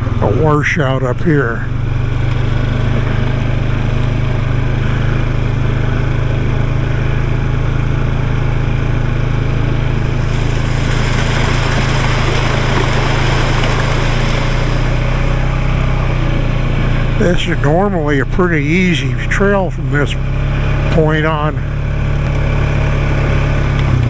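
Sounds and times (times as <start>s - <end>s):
quad bike engine running: 0.0s - 24.0s
rushing hiss: 10.0s - 15.4s.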